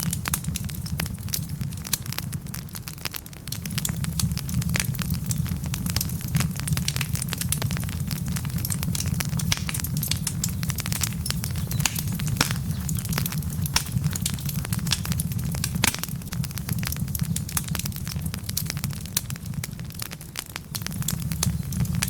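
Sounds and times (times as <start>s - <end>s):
low fire rumble: 0.0s - 22.0s
wood fire crackling and popping: 0.0s - 22.0s.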